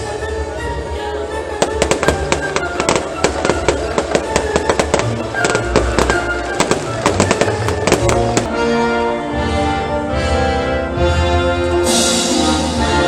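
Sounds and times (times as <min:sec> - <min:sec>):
fireworks bangs and cracks: 0:01.6 - 0:08.5
loud show music: 0:01.6 - 0:13.0.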